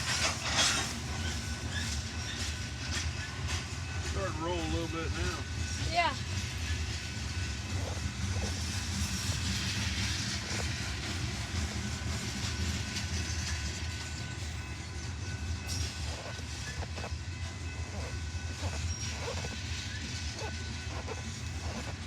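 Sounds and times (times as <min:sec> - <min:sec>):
freight train rumbling by: 0:00.0 - 0:22.0.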